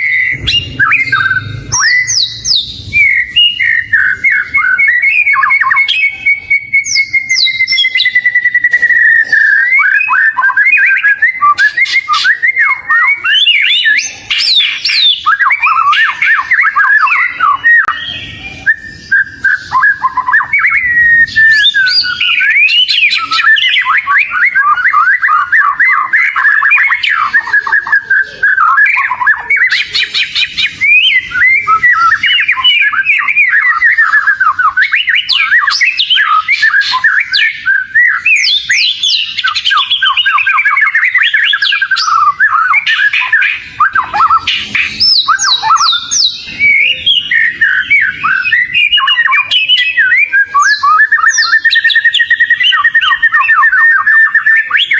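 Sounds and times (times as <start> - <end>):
bird singing whistles and trills: 0.0 - 54.9.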